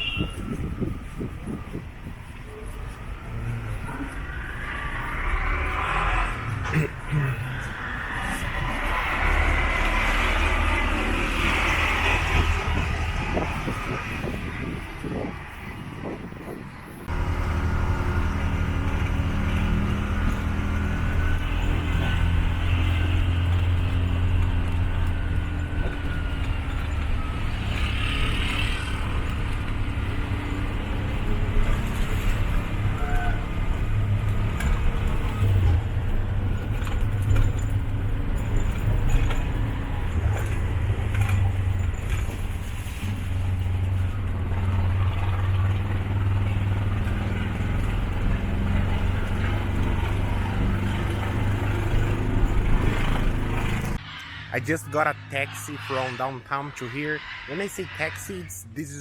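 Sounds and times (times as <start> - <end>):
motorcycle engine drone: 0.0 - 59.0
road noise: 0.0 - 59.0.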